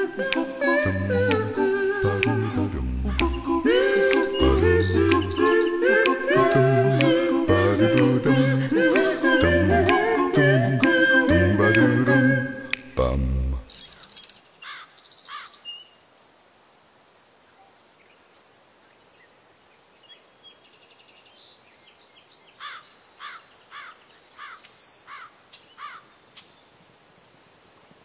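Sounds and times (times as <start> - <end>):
bird chirping: 0.0 - 10.8, 12.6 - 15.9
faint outdoor hiss: 0.0 - 28.0.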